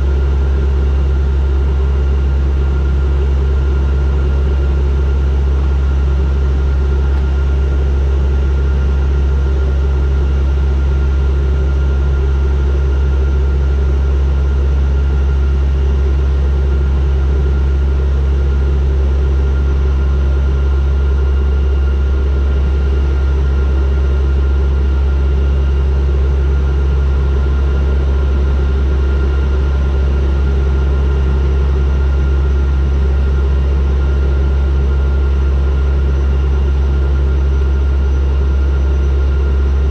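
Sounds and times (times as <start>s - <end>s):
turboprop engines droning: 0.0s - 39.9s.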